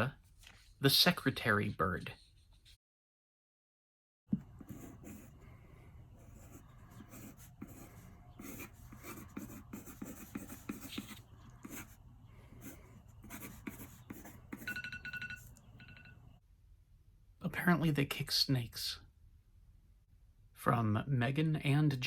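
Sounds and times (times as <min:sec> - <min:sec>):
pen scratching on paper: 0:04.4 - 0:14.8.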